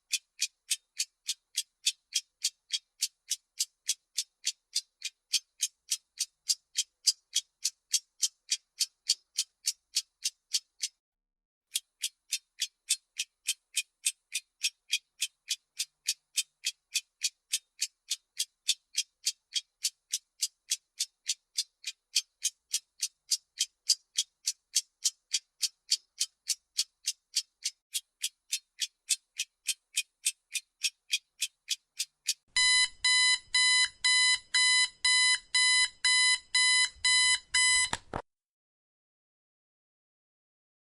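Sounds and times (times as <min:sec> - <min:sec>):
clock ticking: 0:00.0 - 0:11.0, 0:11.7 - 0:38.0
electronic alarm beeps: 0:32.6 - 0:38.0.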